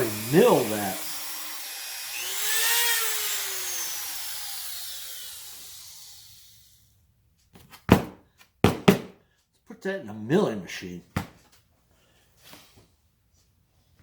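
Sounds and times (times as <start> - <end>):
power tool motor winding down: 0.0 - 6.9
sharp knocks: 7.9 - 9.2.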